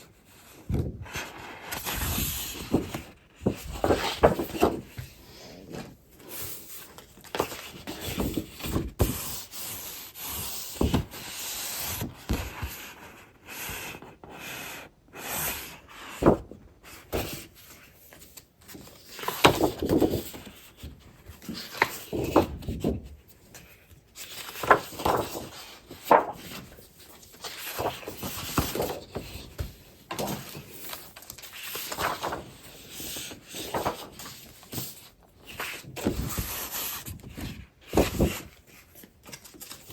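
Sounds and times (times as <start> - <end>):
paper rustling and crinkling: 0.0 - 13.2, 16.0 - 39.9.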